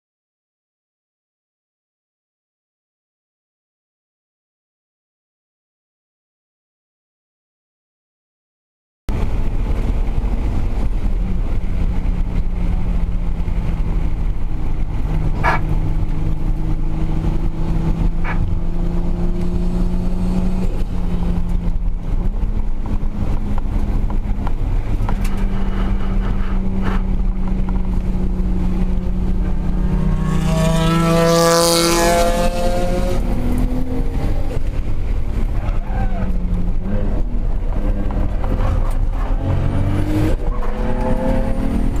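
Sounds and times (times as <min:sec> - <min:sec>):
race car engines running: 0:09.1 - 0:42.0.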